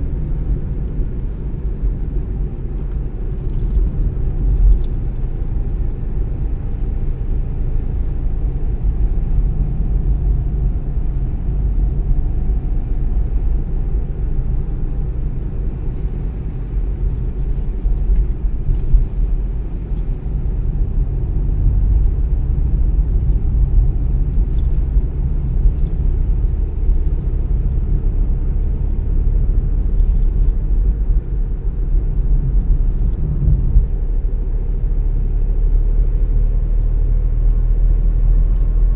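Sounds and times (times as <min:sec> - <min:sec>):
car driving on road: 0:00.0 - 0:38.9.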